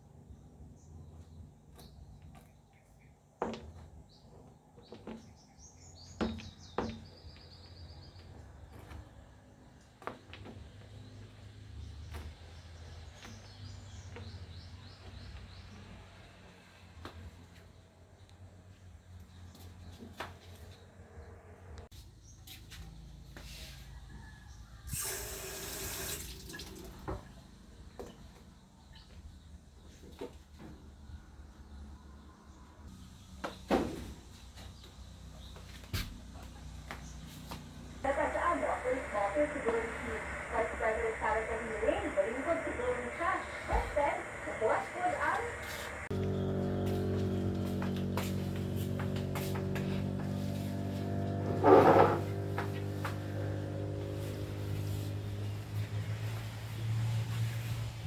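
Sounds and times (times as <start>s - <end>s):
water running: 25.0s - 27.2s, 38.1s - 47.2s
low steady hum: 38.0s - 56.3s.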